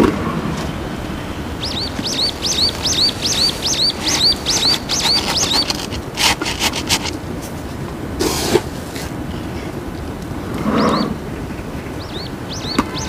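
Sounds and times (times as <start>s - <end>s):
bird chirping: 1.0s - 7.2s, 10.7s - 13.0s
gravel rattling onto soil: 1.6s - 9.2s.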